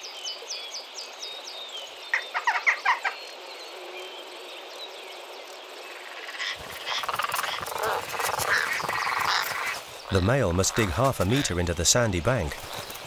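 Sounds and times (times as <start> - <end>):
outdoor ambient hiss: 0.0 - 13.0
birds chirping: 6.4 - 13.0
harsh low bird calls: 6.4 - 13.0.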